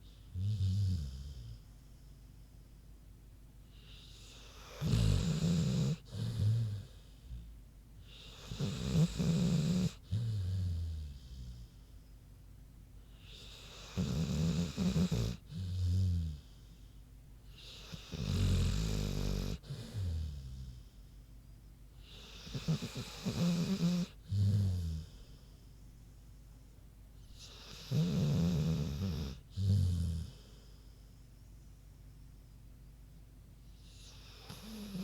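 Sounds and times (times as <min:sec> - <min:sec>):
dog snoring: 0:00.0 - 0:01.7, 0:03.7 - 0:11.8, 0:13.2 - 0:16.8, 0:17.5 - 0:21.0, 0:22.0 - 0:25.4, 0:27.2 - 0:30.7, 0:33.8 - 0:35.0.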